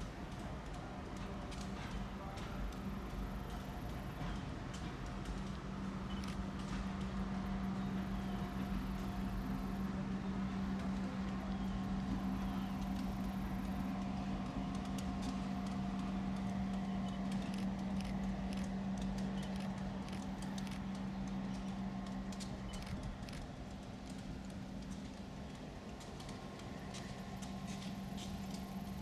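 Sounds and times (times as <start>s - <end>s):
diesel locomotive engine hum: 0.0s - 29.0s
small clicks: 16.4s - 29.0s.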